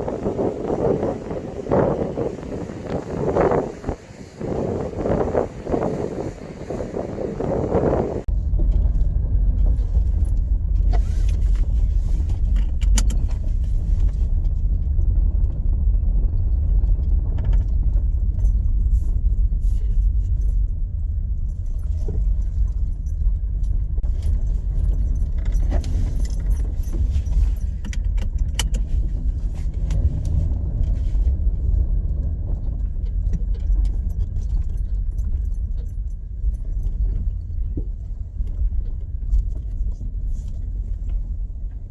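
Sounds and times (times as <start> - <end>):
wind buffeting microphone: 0.0 - 41.9
sharp clicks and rattles: 8.6 - 15.7, 16.4 - 41.9.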